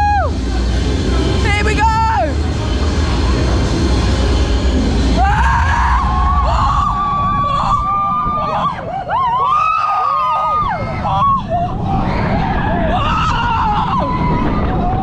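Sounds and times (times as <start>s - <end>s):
roller coaster rumbling: 0.0s - 15.0s
rushing wind: 0.0s - 15.0s
riders screaming: 5.1s - 15.0s.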